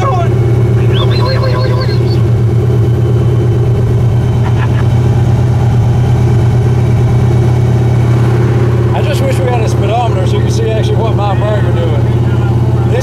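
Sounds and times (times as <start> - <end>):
car engine droning while driving: 0.0 - 13.0.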